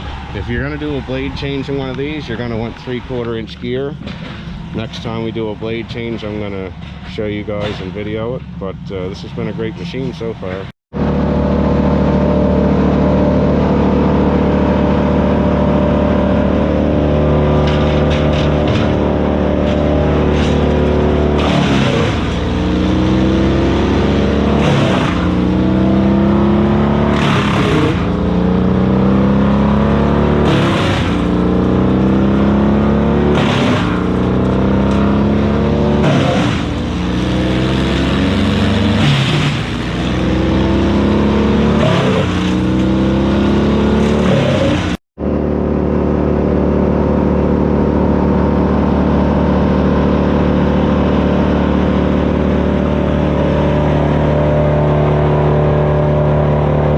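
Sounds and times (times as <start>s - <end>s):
wood chipper engine under load: 0.0s - 56.9s
wood crunching: 17.2s - 26.4s.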